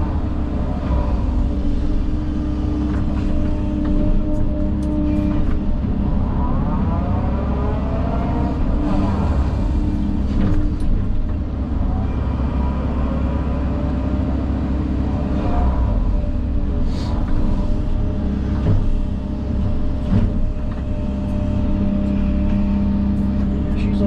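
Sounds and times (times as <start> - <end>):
heavy machine engine running: 0.0 - 24.0.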